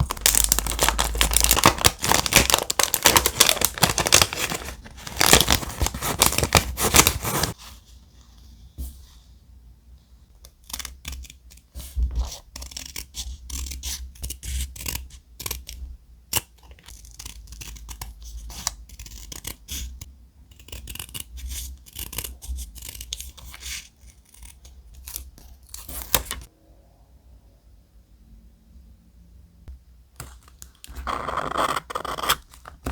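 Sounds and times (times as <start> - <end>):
thick paper crackling: 0.0 - 7.6
paper rustling and scratching: 0.0 - 7.7.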